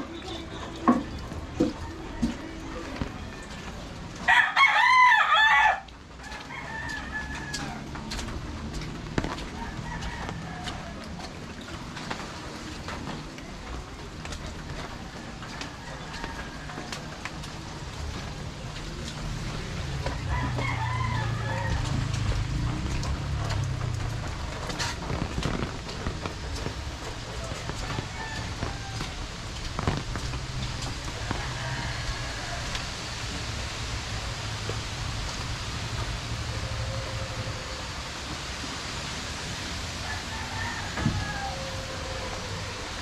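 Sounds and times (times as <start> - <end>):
steady rain: 0.0 - 43.0
street traffic rumble: 0.0 - 43.0
water dripping: 0.0 - 43.0
rooster crowing: 1.7 - 8.2, 9.2 - 11.3, 15.4 - 17.5, 19.4 - 23.5, 27.3 - 29.6, 30.6 - 33.4, 36.4 - 38.3, 39.9 - 43.0.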